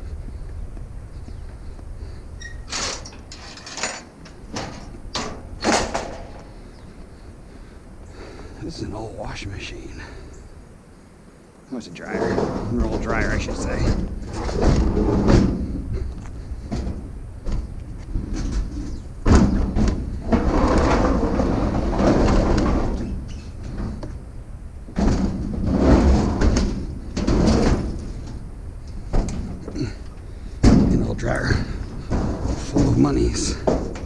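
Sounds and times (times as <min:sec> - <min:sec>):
sheet metal thumps and knocks: 0:03.7 - 0:06.5, 0:30.6 - 0:31.1
rough dragging: 0:11.8 - 0:16.7, 0:20.0 - 0:24.0, 0:25.0 - 0:28.4.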